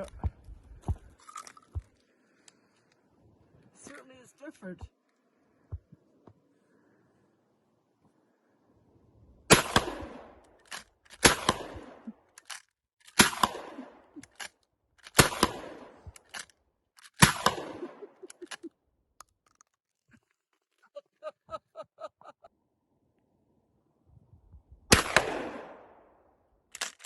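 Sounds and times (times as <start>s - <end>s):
shotgun shots: 9.5s - 10.4s, 11.2s - 12.0s, 13.2s - 14.0s, 15.1s - 16.1s, 17.2s - 18.1s, 24.9s - 26.0s.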